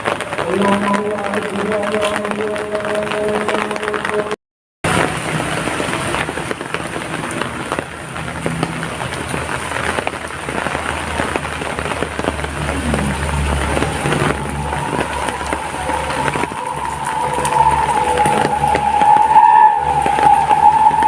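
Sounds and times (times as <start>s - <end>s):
heavy rain falling: 0.0s - 21.0s
low rumble: 4.9s - 21.0s
steady whine: 12.7s - 21.0s.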